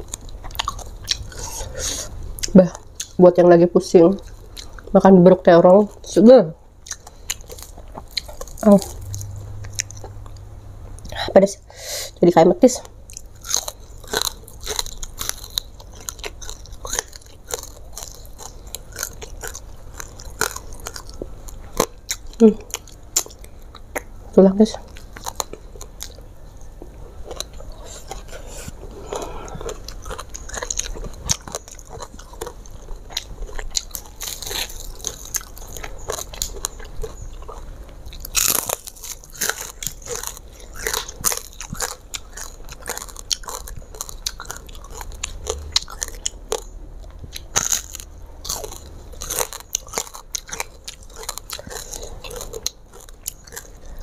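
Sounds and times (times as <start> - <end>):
person chewing fried fish: 0.0 - 3.2, 4.2 - 5.0, 6.7 - 11.2, 12.8 - 54.0
crisp crunches: 27.3 - 46.7.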